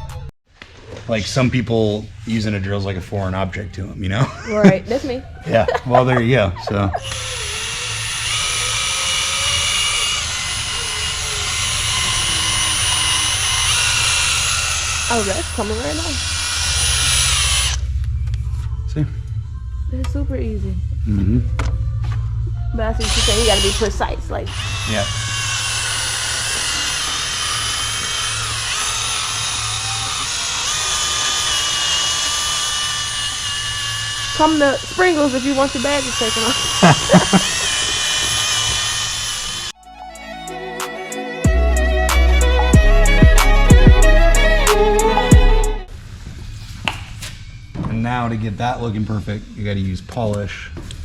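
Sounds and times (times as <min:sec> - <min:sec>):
electric drill whining: 0:06.7 - 0:17.9, 0:22.9 - 0:45.9.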